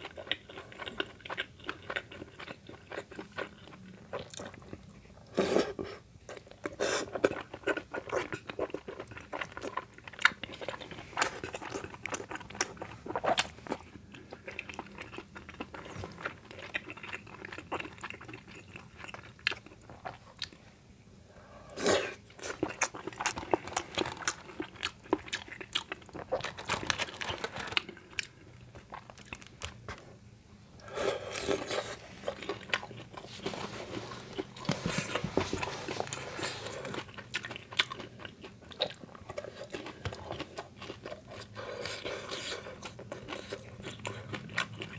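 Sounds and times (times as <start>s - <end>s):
chewing food: 0.0s - 20.6s, 22.1s - 30.1s, 30.8s - 44.9s
crisp snacks crunching: 22.4s - 29.8s.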